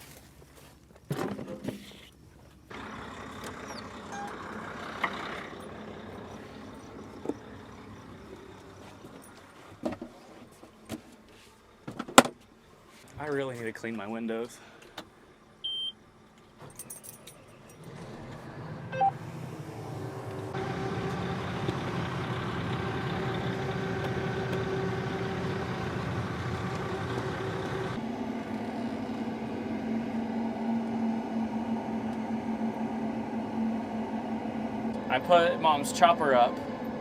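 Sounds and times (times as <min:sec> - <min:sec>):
combine machinery droning: 0:02.7 - 0:09.5, 0:17.5 - 0:37.0.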